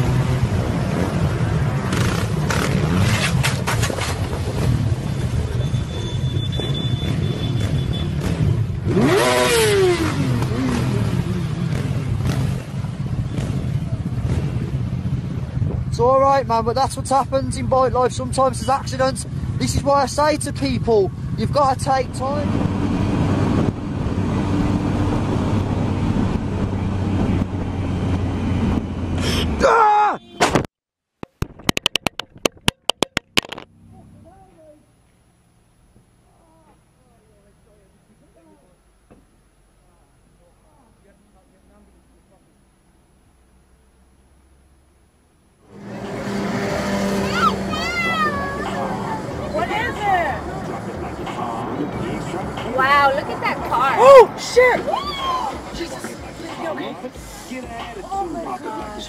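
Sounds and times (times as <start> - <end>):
motorcycle engine revving: 0.0 - 15.8, 45.6 - 53.7
low traffic rumble: 0.0 - 30.7, 31.7 - 59.0
sharp clicks or knocks: 30.4 - 33.7
vehicle engine running: 43.0 - 54.7
loud rush of noise: 45.6 - 59.0.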